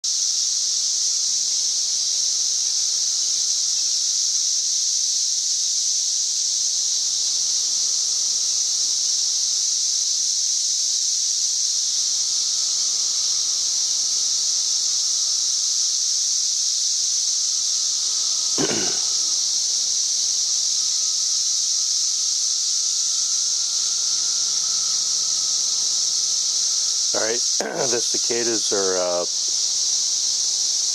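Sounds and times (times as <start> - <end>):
cicadas singing: 0.0 - 30.9.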